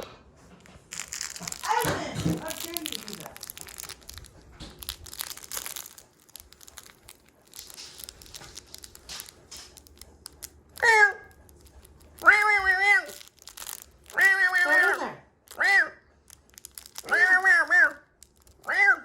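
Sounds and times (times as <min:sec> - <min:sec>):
paper or plastic crinkling: 0:00.6 - 0:18.7.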